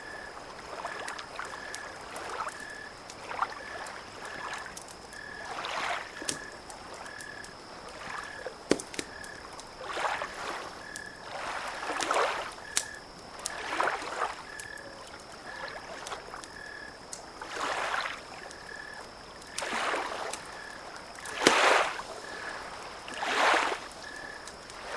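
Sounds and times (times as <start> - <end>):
frog or insect calling: 0.0 - 24.9
small waves lapping: 0.0 - 24.9
campfire crackling and popping: 0.6 - 17.5, 18.4 - 24.9.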